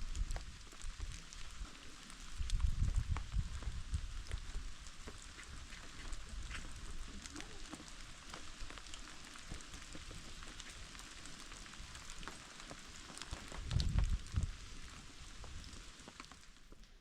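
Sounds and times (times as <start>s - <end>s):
raindrops ticking on surfaces: 0.0s - 17.0s
steady rain hiss: 0.0s - 17.0s.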